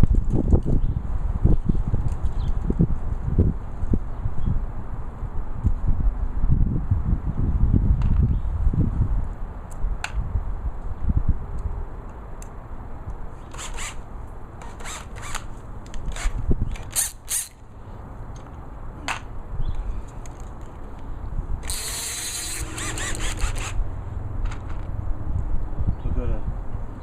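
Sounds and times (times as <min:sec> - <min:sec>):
wind rumble on microphone: 0:00.0 - 0:13.2, 0:15.6 - 0:17.1, 0:18.2 - 0:27.0
drill chuck ratcheting clicks: 0:14.6 - 0:17.6, 0:21.6 - 0:23.8
power drill running: 0:21.6 - 0:23.8.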